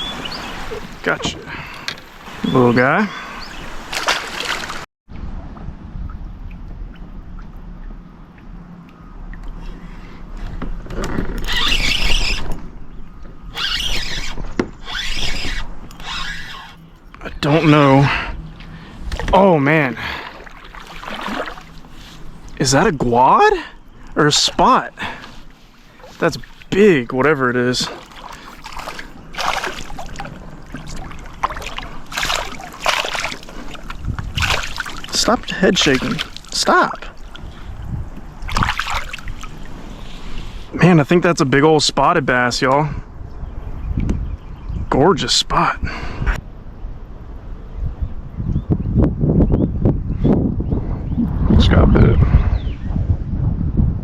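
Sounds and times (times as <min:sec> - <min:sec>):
fish splashing water: 0:03.4 - 0:04.9, 0:20.1 - 0:22.5, 0:27.7 - 0:40.1
fishing reel whirring: 0:11.4 - 0:12.6, 0:13.5 - 0:17.0.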